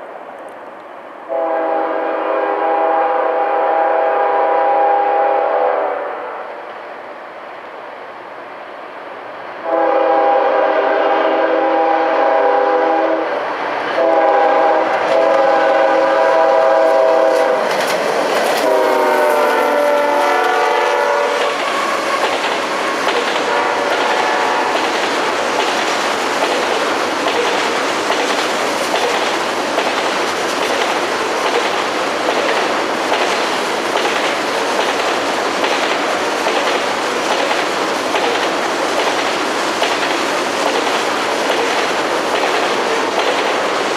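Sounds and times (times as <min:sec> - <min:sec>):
freight train rumbling by: 0:00.0 - 0:43.9
locomotive air horn blasts: 0:01.3 - 0:06.5, 0:09.6 - 0:13.3, 0:14.0 - 0:17.7, 0:18.6 - 0:22.2, 0:22.8 - 0:24.8
wheels clacking over rail joints: 0:16.4 - 0:20.4, 0:21.3 - 0:43.9.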